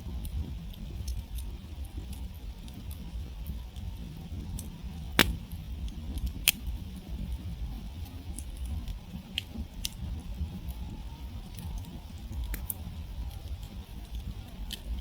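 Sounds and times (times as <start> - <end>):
sharp pops from fire: 5.2 - 5.4.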